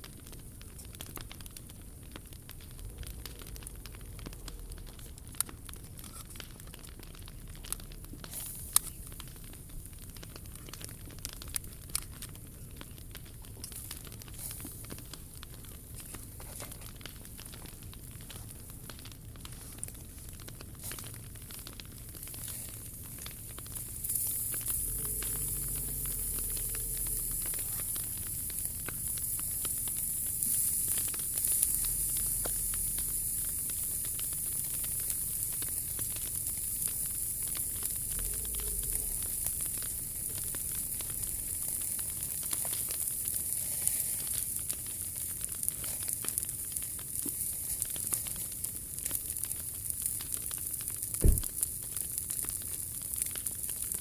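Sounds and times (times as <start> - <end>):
steady hiss: 0.0 - 54.0
wood fire crackling: 0.0 - 54.0
sharp pops: 51.1 - 52.5.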